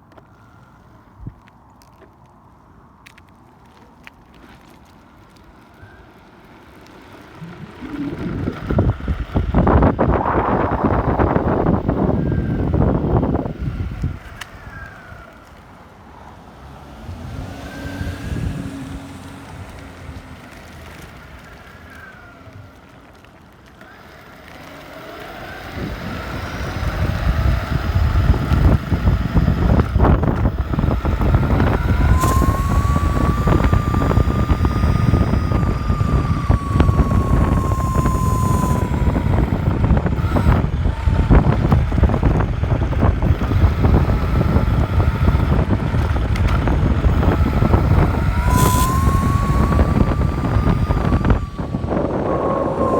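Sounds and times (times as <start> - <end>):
high-pitched whine: 7.3 - 13.6, 25.8 - 52.9
loud rumbling noise: 7.3 - 14.2, 27.0 - 52.9.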